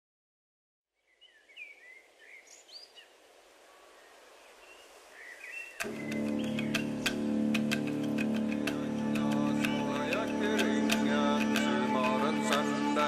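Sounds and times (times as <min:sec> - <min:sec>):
small birds chirping: 0:01.0 - 0:13.0
plucked string music: 0:05.8 - 0:13.0.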